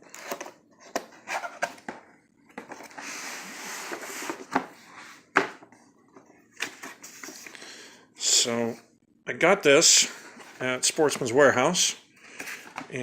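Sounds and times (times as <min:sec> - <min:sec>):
cardboard rustling and scraping: 0:00.0 - 0:07.5.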